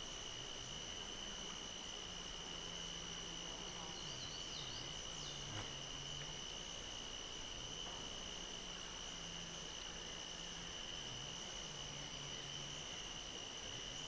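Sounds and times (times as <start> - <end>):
faint low hum: 0.0 - 14.0
insects trilling: 0.0 - 14.0
faint bird chirps: 3.8 - 5.6.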